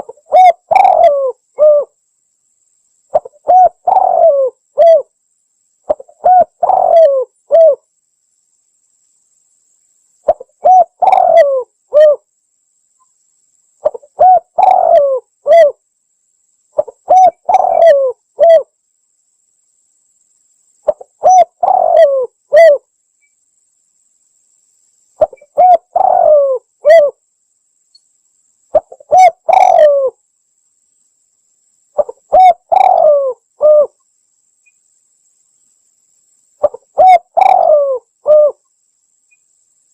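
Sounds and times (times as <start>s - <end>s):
dove cooing: 0.0s - 2.0s, 3.1s - 5.1s, 5.9s - 7.8s, 10.3s - 12.2s, 13.8s - 15.8s, 16.8s - 18.7s, 20.9s - 22.8s, 25.2s - 27.2s, 28.7s - 30.2s, 32.0s - 34.0s, 36.6s - 38.6s.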